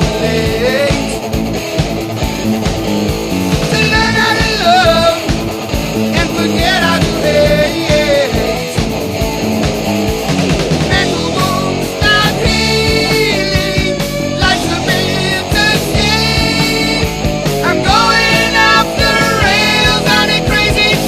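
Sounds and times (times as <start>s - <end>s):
rock music with electric guitar: 0.0s - 21.0s.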